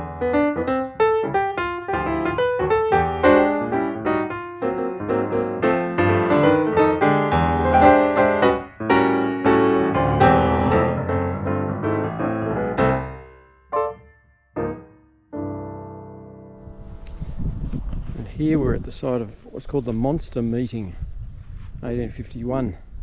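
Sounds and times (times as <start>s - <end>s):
piano music: 0.0s - 17.1s.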